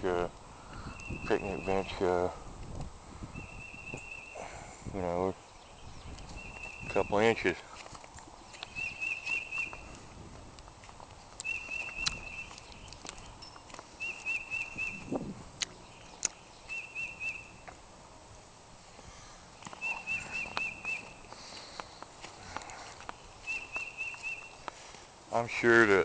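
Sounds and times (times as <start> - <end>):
songbird chirping: 0.1 - 2.3, 3.3 - 10.0, 10.6 - 17.9, 19.0 - 26.0
crunch: 10.6 - 14.4.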